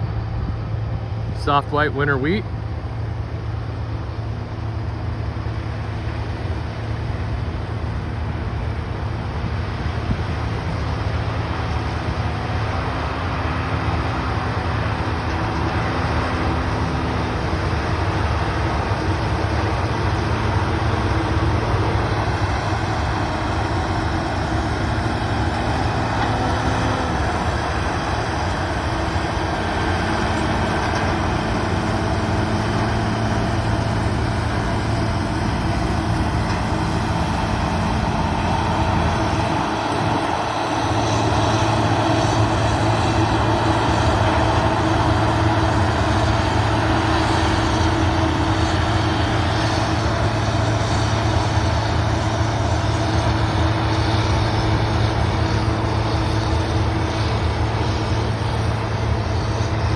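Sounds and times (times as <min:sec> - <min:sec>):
combine harvester engine hum: 0:00.0 - 0:59.9
rushing noise: 0:09.2 - 0:59.9.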